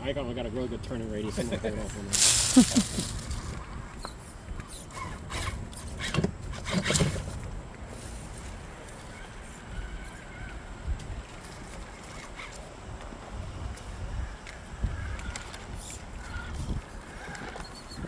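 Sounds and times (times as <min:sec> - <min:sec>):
tyres scraping on rock: 0:02.1 - 0:03.6.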